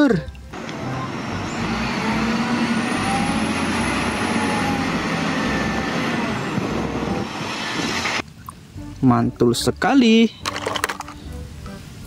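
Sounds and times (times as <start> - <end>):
water spraying: 0.4 - 8.6.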